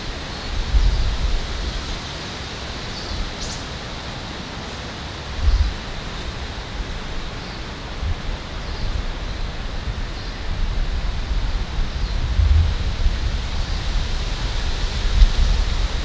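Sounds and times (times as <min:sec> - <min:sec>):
wind buffeting microphone: 0:00.0 - 0:02.0, 0:05.3 - 0:16.0
wind rushing in forest: 0:00.0 - 0:16.0.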